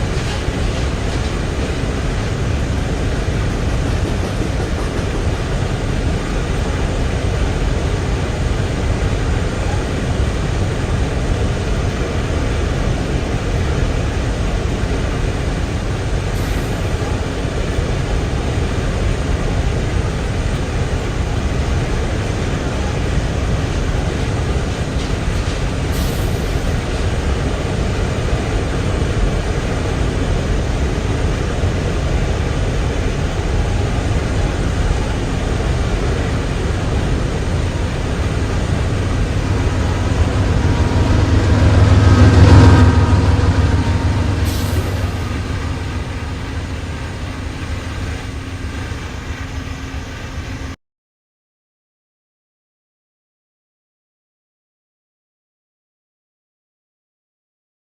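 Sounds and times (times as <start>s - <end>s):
train rumbling past: 0.0s - 50.8s
brief high-pitched sound: 38.0s - 48.1s.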